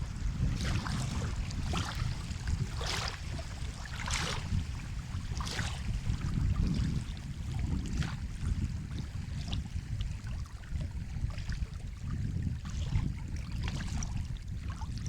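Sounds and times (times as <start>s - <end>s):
sea waves rumbling on shore: 0.0s - 9.4s.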